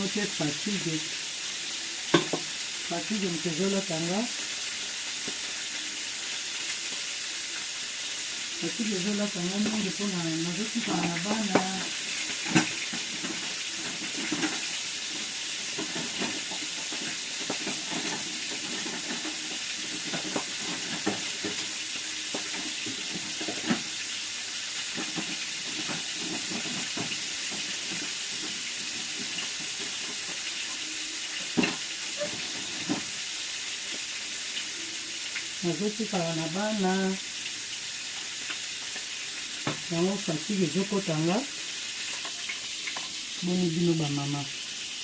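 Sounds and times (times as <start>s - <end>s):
fish sizzling in hot oil: 0.0s - 45.0s.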